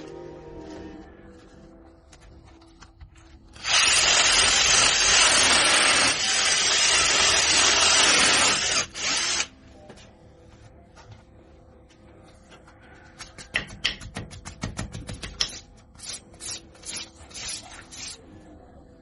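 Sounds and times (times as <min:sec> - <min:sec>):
power drill drilling into wall: 0:03.6 - 0:09.5.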